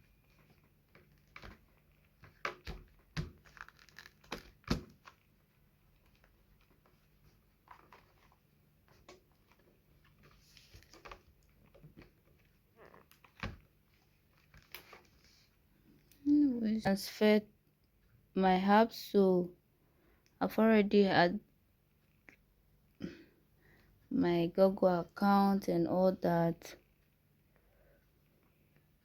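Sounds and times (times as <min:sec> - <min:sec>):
soft rustle: 0:04.9 - 0:17.1.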